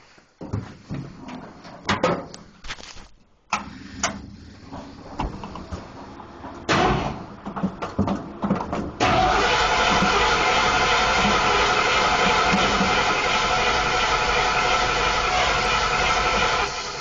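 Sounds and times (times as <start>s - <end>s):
engine cranking and running: 3.5s - 17.0s.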